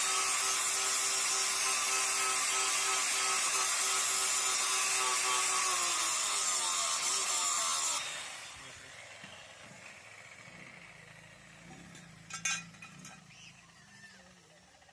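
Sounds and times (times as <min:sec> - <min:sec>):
loud metalworking hiss: 0:00.0 - 0:08.9
metal clinks: 0:11.9 - 0:13.3.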